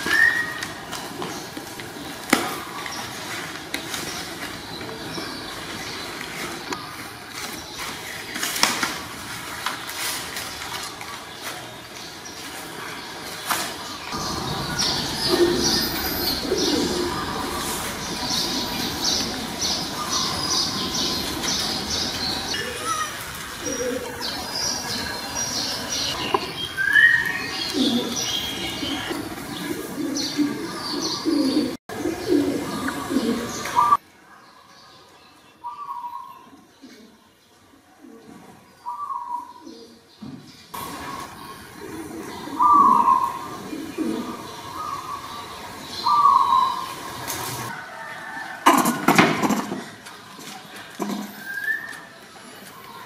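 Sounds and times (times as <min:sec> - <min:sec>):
low cooing calls: 0:00.0 - 0:08.0, 0:14.1 - 0:34.0, 0:37.9 - 0:40.1, 0:40.8 - 0:49.9
birds chirping: 0:00.0 - 0:53.0.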